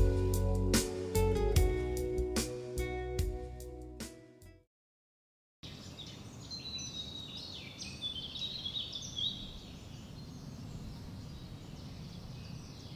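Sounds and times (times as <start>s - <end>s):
birds chirping and twittering: 5.6s - 12.9s.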